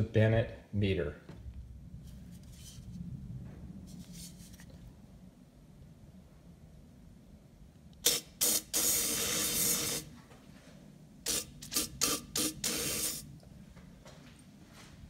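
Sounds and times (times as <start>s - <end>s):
aerosol can spraying: 8.0s - 10.1s, 11.2s - 13.3s.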